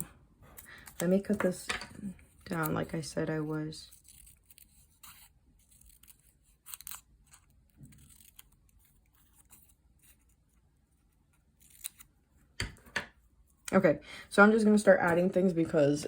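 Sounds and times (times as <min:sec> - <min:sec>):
scissors snipping paper: 0:02.4 - 0:10.4, 0:11.4 - 0:12.1.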